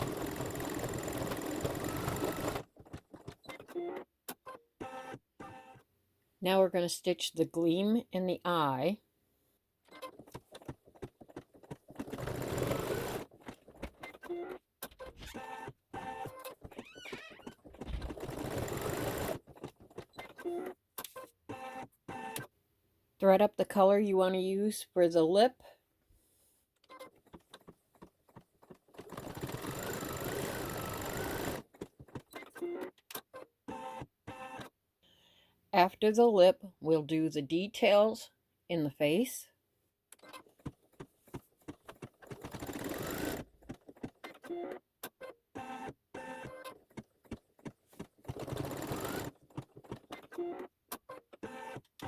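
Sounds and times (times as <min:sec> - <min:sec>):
embroidery machine stitching: 0:00.0 - 0:04.1, 0:10.0 - 0:20.8, 0:27.1 - 0:33.0, 0:41.7 - 0:44.8, 0:45.6 - 0:52.0.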